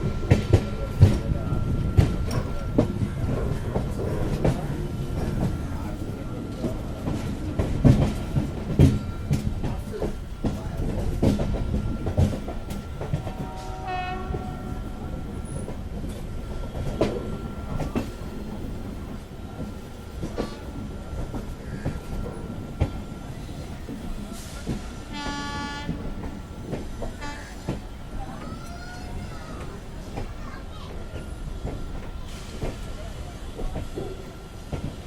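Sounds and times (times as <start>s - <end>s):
train running on track: 0.0s - 35.0s
train horn blast: 13.1s - 15.0s, 25.1s - 26.0s, 27.1s - 27.8s.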